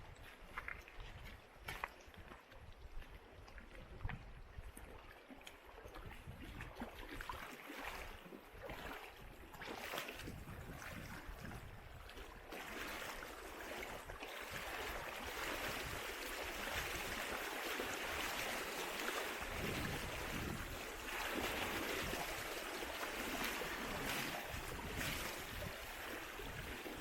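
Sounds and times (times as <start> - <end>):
footsteps on trail: 0.1 - 3.2
river water rushing: 14.7 - 27.0.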